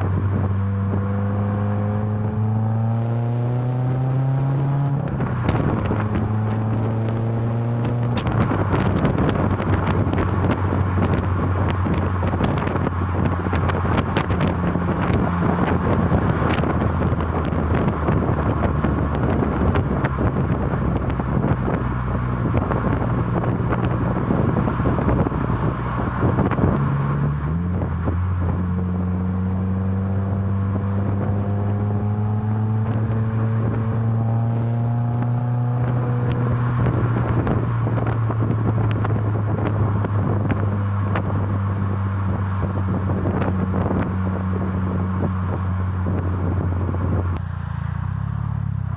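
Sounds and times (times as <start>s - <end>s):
wind noise: 0.0s - 48.2s
car exhaust droning: 0.0s - 48.9s.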